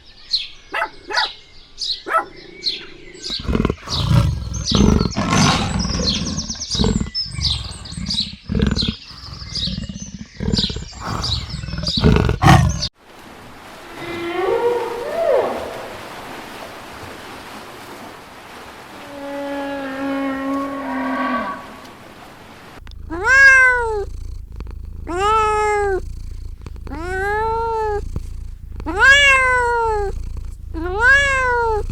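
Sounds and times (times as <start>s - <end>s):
longer animal calls: 2.1s - 12.9s, 22.8s - 31.9s
cat meowing: 22.8s - 31.9s.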